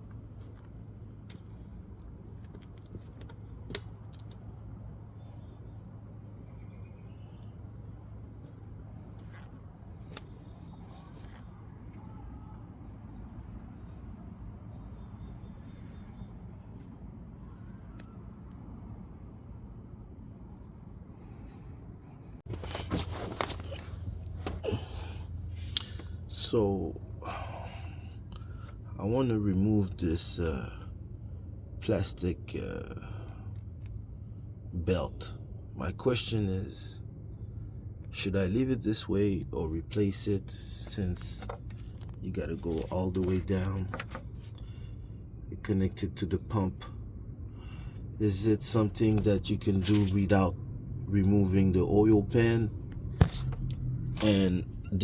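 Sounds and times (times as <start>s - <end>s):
steady low hum: 0.0s - 55.0s
rustling: 22.5s - 24.6s.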